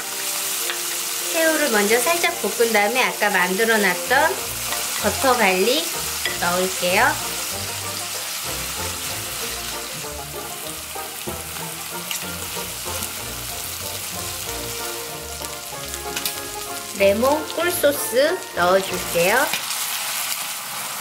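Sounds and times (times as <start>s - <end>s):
soft background music: 0.0s - 19.8s
shrimp sizzling in a frying pan: 0.0s - 21.0s
spatula stirring in a pan: 0.1s - 1.3s, 4.3s - 16.9s.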